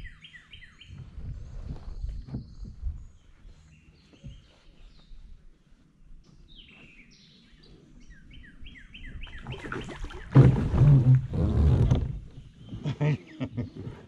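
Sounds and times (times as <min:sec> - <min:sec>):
splashing and thrashing in water: 0:09.4 - 0:12.2.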